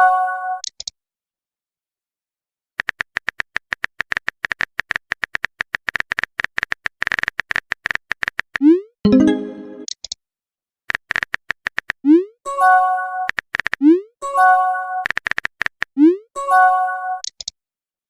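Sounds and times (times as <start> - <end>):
phone keyboard typing clicks: 15.0 - 15.9.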